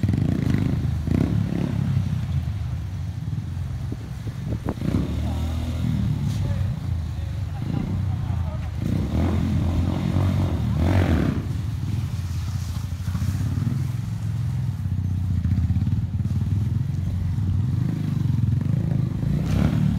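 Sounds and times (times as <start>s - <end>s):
motorcycle engine running: 0.0s - 19.9s.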